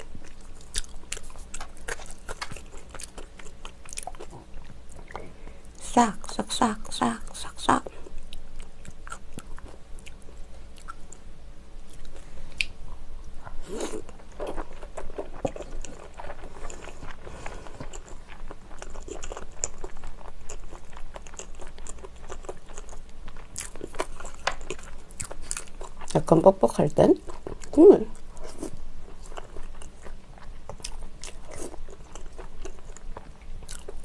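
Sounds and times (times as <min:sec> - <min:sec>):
person chewing and biting: 0:00.0 - 0:05.2, 0:13.4 - 0:26.1, 0:27.3 - 0:34.0.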